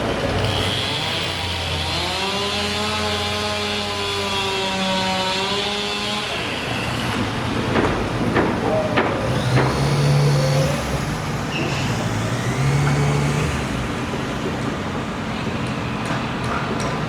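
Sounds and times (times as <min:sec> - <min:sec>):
motor humming: 0:07.0 - 0:15.1
sharp knocks: 0:07.6 - 0:11.9.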